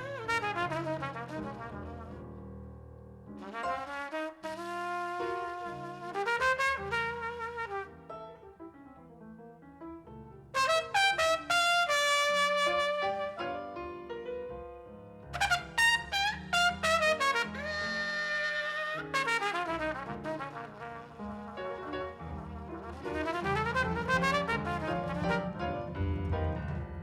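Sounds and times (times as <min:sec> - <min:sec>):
brass music over loudspeakers: 0:10.6 - 0:13.4, 0:15.4 - 0:20.6, 0:21.2 - 0:25.9.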